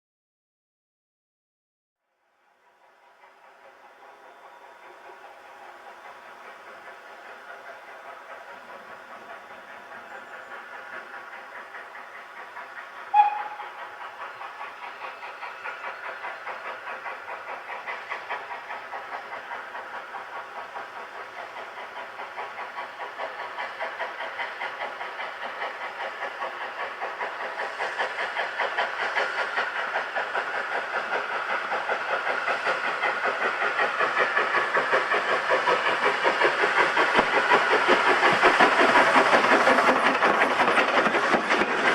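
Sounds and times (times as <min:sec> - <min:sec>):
steam locomotive exhaust puffing: 0:02.7 - 0:41.9
steam whistle toot: 0:13.1 - 0:13.8.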